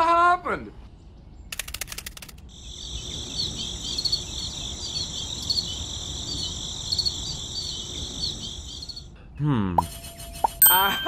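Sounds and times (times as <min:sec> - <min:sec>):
bird-like chirps: 0:00.8 - 0:09.2
crickets chirring: 0:01.6 - 0:09.2.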